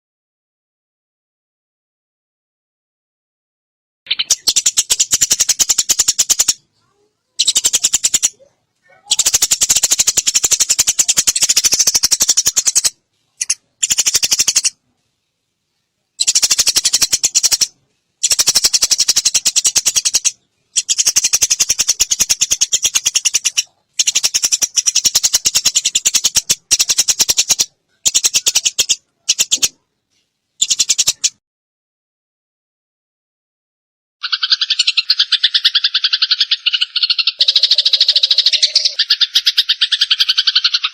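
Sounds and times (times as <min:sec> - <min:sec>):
sparrows chattering: 0:04.1 - 0:14.8, 0:16.1 - 0:29.8, 0:30.6 - 0:31.4, 0:34.2 - 0:40.9.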